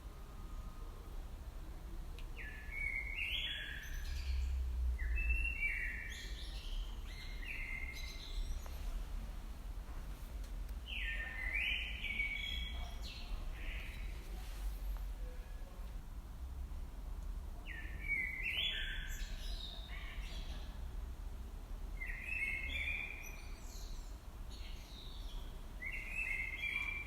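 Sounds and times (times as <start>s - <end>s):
steady low rumble: 4.2s - 12.0s.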